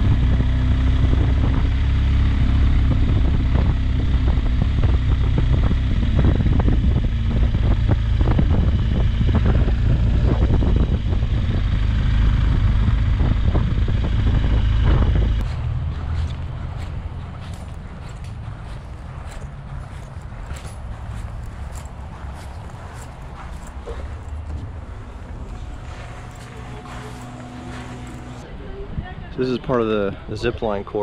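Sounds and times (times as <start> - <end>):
motorcycle engine running: 0.0 - 28.5
wind rumble on microphone: 0.0 - 31.0.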